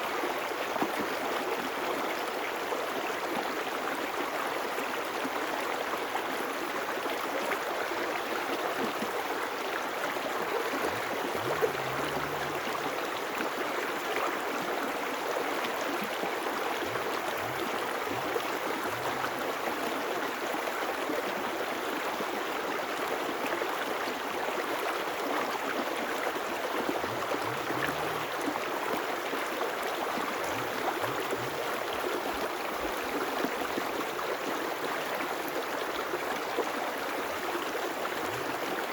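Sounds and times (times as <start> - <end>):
river water rushing: 9.2 - 13.6, 14.2 - 23.3.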